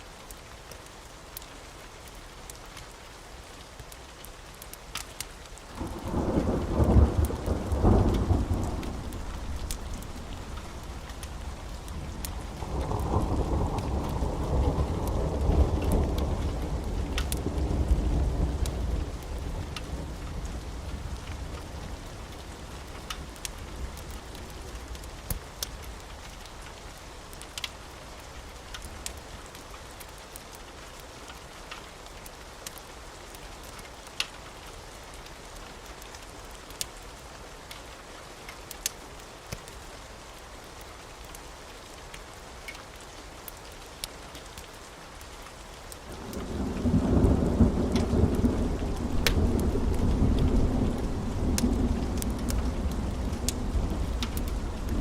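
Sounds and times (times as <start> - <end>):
rain hissing: 0.0 - 55.0
wood fire crackling pops: 4.6 - 14.2, 15.0 - 20.5, 46.1 - 55.0
thunder rumbling: 5.7 - 25.0, 46.1 - 55.0.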